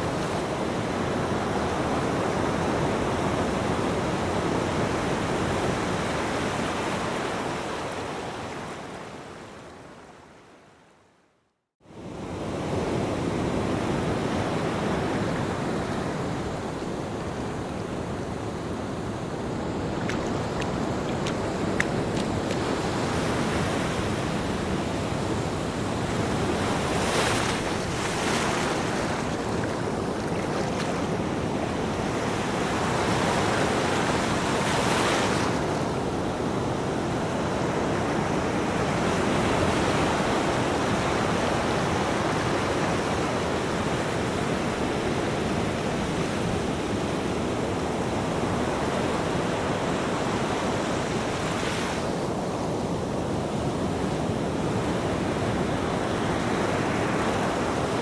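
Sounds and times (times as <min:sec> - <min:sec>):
ocean waves breaking: 0:12.9 - 0:43.0.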